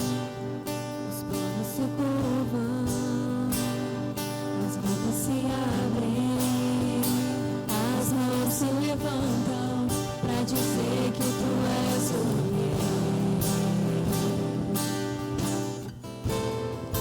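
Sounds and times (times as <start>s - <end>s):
person singing: 0.0s - 15.8s.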